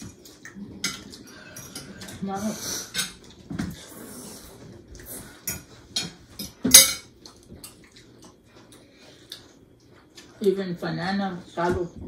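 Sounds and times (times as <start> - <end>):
cutlery and dishes clinking: 5.4 - 7.1.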